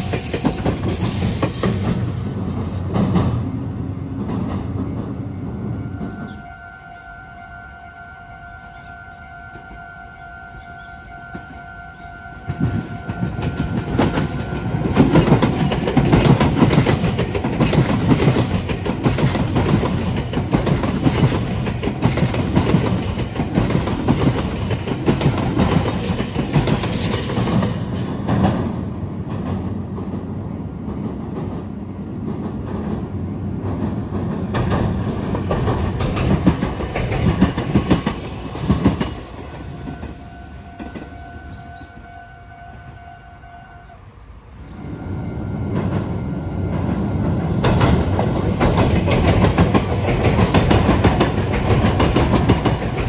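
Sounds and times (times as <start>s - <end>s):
electric train passing: 0.0s - 53.0s
level crossing warning tone: 5.5s - 16.2s, 39.5s - 43.9s, 44.7s - 48.4s
wheels clattering over rail joints: 12.6s - 30.3s, 30.9s - 40.0s, 46.7s - 53.0s.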